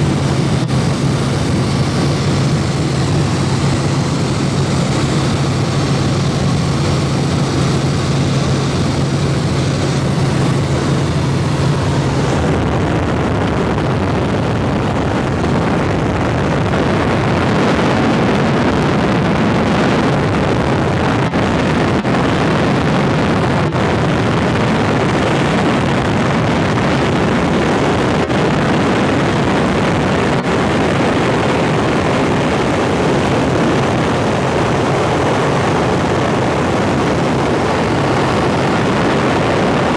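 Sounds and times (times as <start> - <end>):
low steady hum: 0.0 - 25.6
helicopter engine and rotor noise: 0.0 - 39.9.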